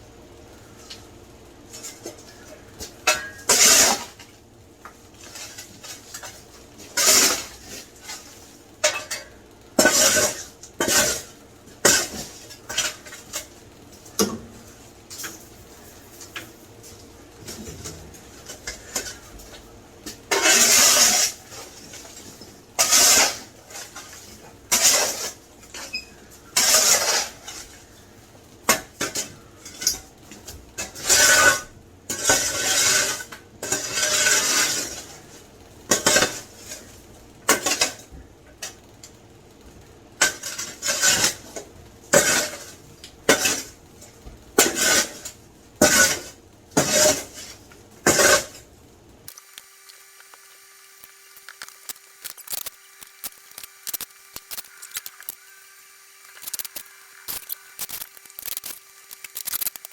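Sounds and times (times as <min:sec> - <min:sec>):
rubble scraping and clattering: 0:01.7 - 0:38.8, 0:39.7 - 0:48.7.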